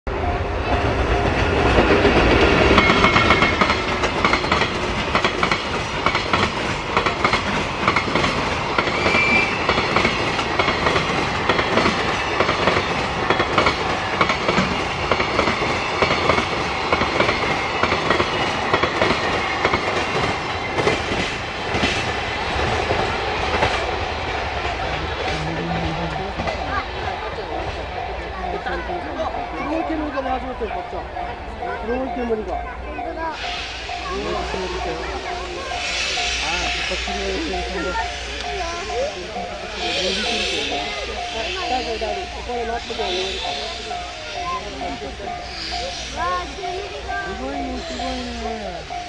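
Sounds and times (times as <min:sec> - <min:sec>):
freight train passing: 0:00.1 - 0:49.0
wagon wheels clacking over rail joints: 0:01.2 - 0:26.7.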